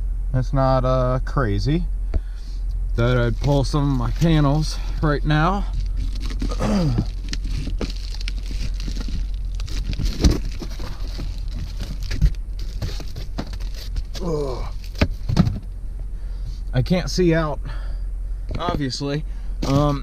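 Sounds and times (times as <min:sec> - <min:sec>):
panels rustling and crinkling: 0:03.0 - 0:16.6, 0:19.6 - 0:20.0.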